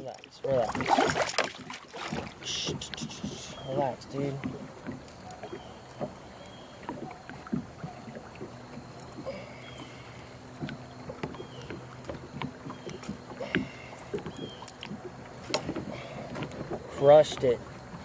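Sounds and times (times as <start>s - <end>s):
knocks and taps on a kayak: 6.8s - 8.9s, 10.5s - 18.0s.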